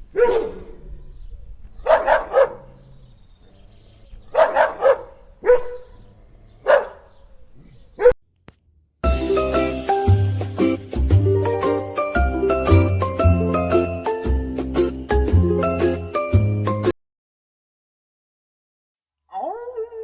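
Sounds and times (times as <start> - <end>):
dog barking: 0.1 - 0.8, 1.8 - 2.8, 4.3 - 7.3.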